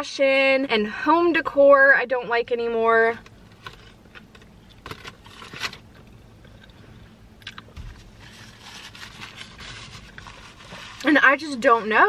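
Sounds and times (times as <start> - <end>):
person biting and chewing: 7.4 - 7.8.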